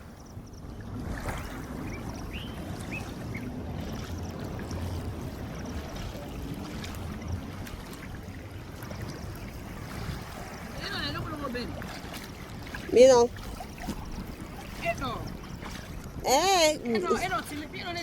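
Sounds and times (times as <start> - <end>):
water splashing and trickling: 0.0 - 18.0.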